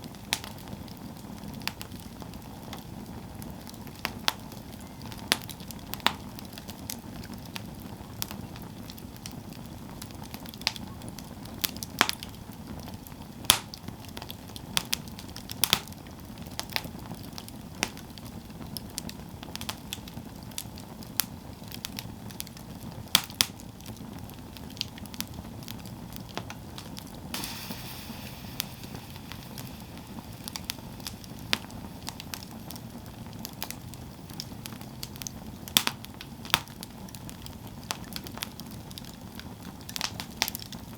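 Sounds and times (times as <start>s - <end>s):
campfire crackling: 0.0s - 40.9s
brief high hiss: 27.4s - 32.9s.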